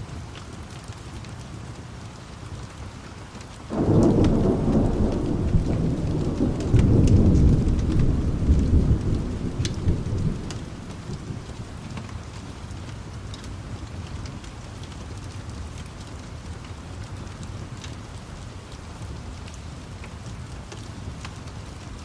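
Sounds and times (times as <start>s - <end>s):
steady rain: 0.0s - 22.0s
thunder rumbling: 3.7s - 12.4s.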